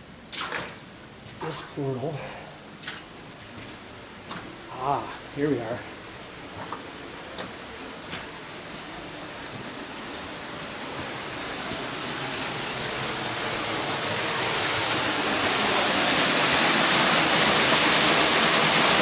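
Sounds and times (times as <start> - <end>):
waterfall rushing: 7.0 - 19.0.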